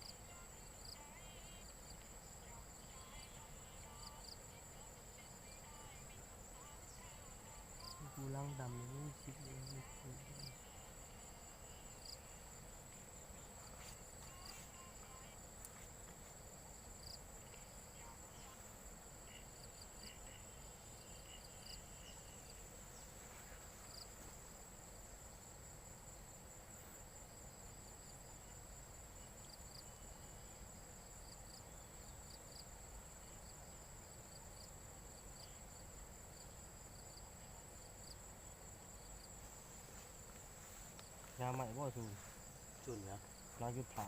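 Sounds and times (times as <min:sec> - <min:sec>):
faint insect chirps: 0:00.0 - 0:44.0
insect high trill: 0:00.0 - 0:44.0.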